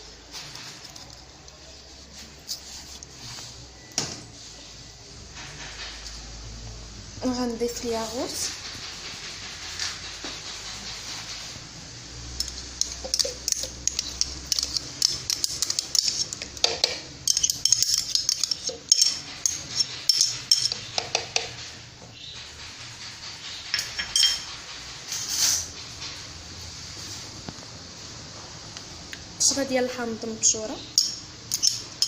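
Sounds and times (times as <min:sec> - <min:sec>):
spoon scraping and clinking pot: 0:12.3 - 0:21.6, 0:23.7 - 0:24.5, 0:31.0 - 0:32.0.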